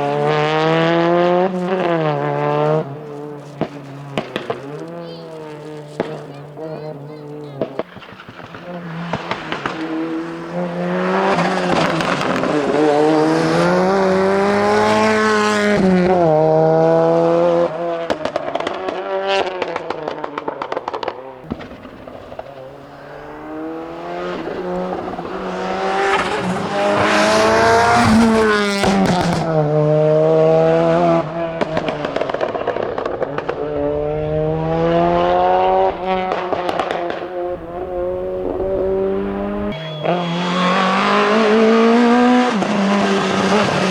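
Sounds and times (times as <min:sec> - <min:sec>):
car engine accelerating hard: 0:00.0 - 0:43.9.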